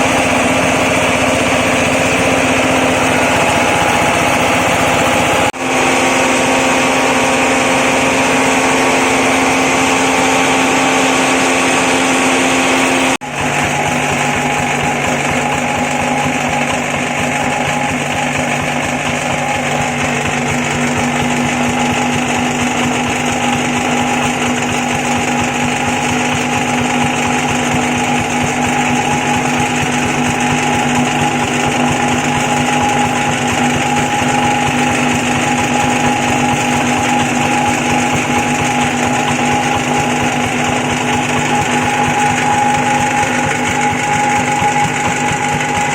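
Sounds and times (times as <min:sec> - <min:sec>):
shredding machine humming: 0:00.0 - 0:45.9.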